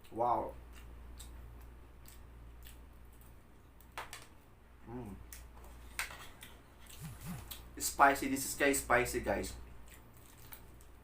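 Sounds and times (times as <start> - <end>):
person humming mm: 4.8 - 5.2, 7.0 - 7.6
wet mouth clicks: 6.9 - 7.7
crunching fried chicken: 9.8 - 11.0.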